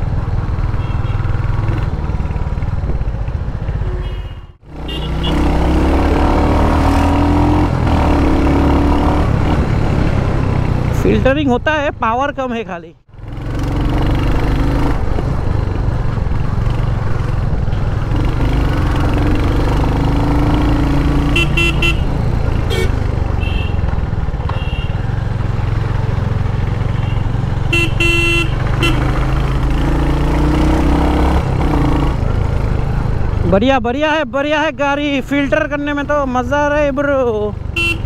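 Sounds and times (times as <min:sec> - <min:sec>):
vehicle horns honking: 0:00.8 - 0:01.3, 0:03.8 - 0:05.5, 0:21.2 - 0:23.9, 0:24.5 - 0:25.0, 0:26.9 - 0:29.2, 0:37.8 - 0:38.0
motorcycle engine running: 0:13.1 - 0:33.6.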